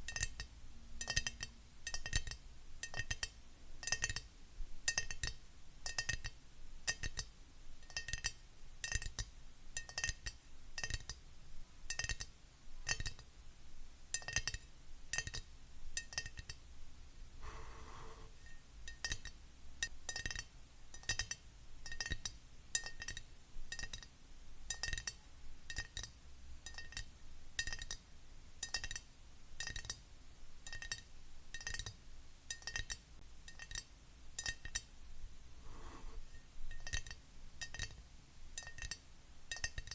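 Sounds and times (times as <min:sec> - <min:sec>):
soft handling sound: 0:17.4 - 0:18.5, 0:35.5 - 0:36.4.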